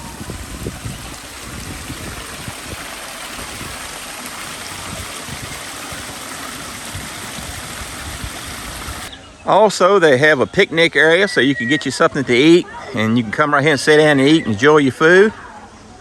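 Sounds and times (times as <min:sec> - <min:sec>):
waterfall rushing: 0:00.0 - 0:09.1.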